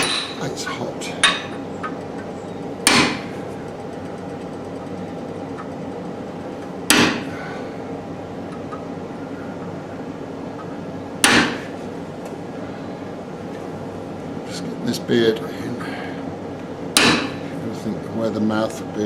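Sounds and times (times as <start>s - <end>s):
hammer striking hot metal: 0.0s - 0.4s, 2.8s - 3.3s, 6.9s - 7.3s, 11.2s - 11.7s, 17.0s - 17.4s
steady background hum: 0.0s - 19.0s.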